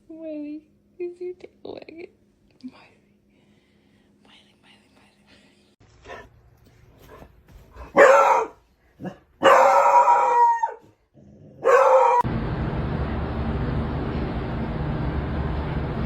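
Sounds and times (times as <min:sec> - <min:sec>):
dog barking loudly: 0:07.8 - 0:10.8, 0:11.6 - 0:12.3.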